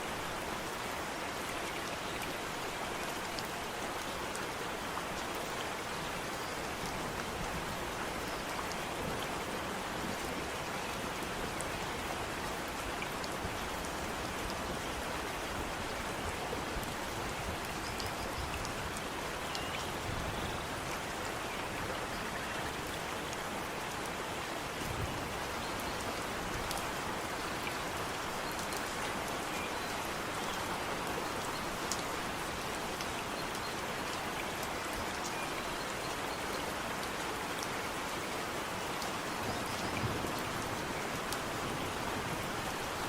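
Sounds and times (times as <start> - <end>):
rain hiss: 0.0 - 43.0.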